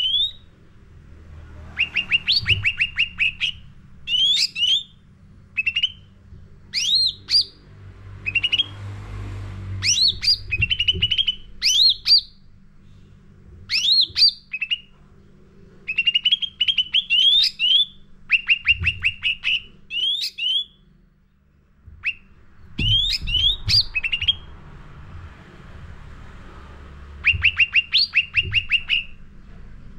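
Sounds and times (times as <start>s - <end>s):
bird singing chirps: 0.0s - 0.5s, 1.8s - 5.0s, 5.6s - 6.1s, 6.7s - 7.6s, 8.2s - 8.8s, 9.8s - 12.4s, 13.7s - 14.9s, 15.9s - 20.9s, 22.0s - 24.5s, 27.2s - 29.2s
low steady hum: 0.0s - 29.9s.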